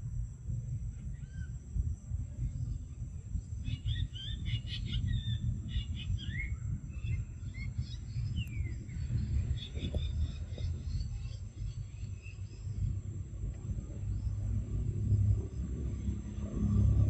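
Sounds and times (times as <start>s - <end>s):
steady low rumble: 0.0s - 17.0s
small birds chirping: 2.4s - 12.9s.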